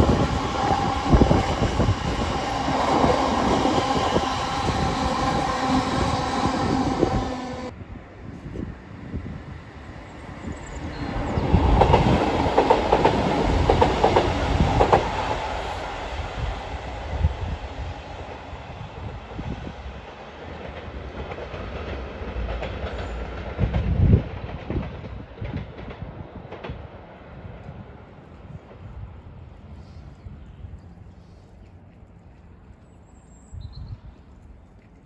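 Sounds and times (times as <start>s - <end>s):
wind rumble on microphone: 0.0s - 20.6s, 22.6s - 35.0s
train wheels clicking over track: 10.8s - 15.9s.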